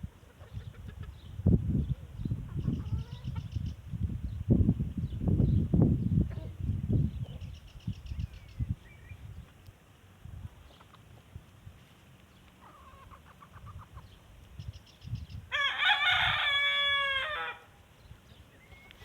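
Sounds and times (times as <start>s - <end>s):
rooster crowing: 15.5s - 17.7s.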